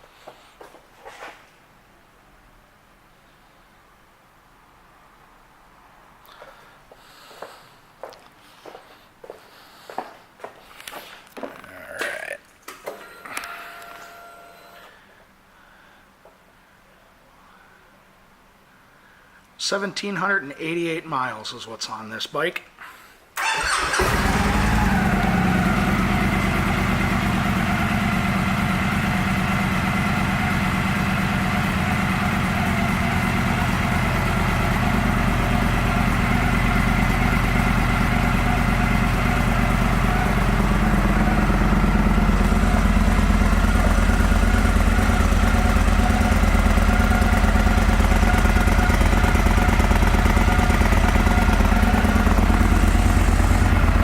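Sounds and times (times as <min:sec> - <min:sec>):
motorcycle engine idling: 0:23.4 - 0:54.0.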